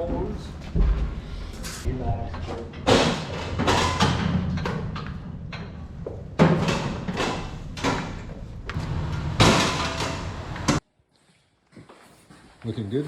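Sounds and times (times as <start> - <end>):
heavy bangs and thumps: 2.1 - 10.8.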